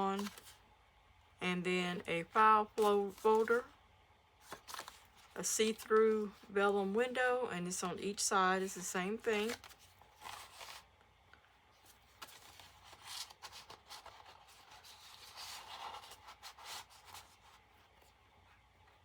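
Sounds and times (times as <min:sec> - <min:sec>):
paper rustling: 0:00.0 - 0:00.6, 0:02.6 - 0:03.7, 0:04.4 - 0:06.4, 0:09.2 - 0:10.9, 0:11.8 - 0:19.0.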